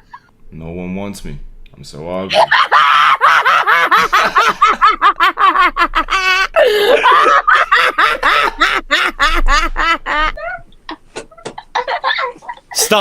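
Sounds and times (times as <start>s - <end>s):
person laughing hard: 2.3s - 12.9s.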